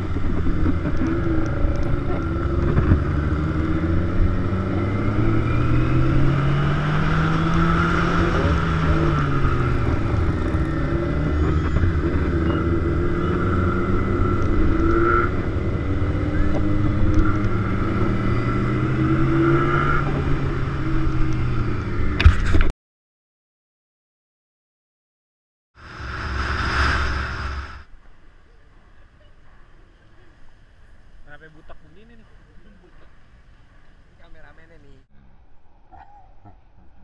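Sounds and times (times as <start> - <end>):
motorcycle engine revving: 0.0 - 22.3.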